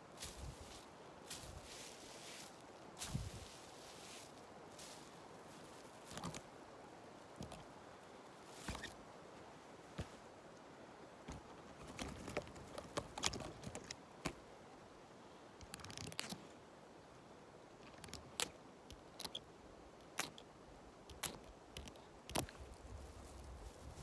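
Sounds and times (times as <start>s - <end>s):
dry leaves rustling and crackling: 0.0s - 6.5s, 8.3s - 9.0s, 22.4s - 24.0s
faint steady hiss: 0.0s - 24.0s.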